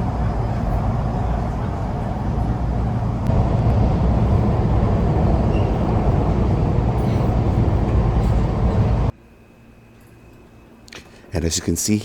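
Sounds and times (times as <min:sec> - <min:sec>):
subway train rumbling in tunnel: 0:00.0 - 0:09.4.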